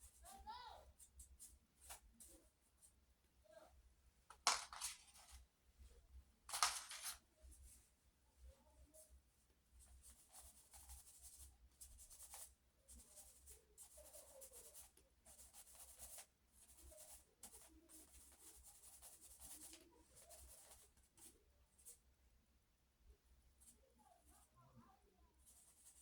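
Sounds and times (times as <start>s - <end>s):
drawing tool scratching paper: 6.5s - 7.2s, 10.1s - 21.3s.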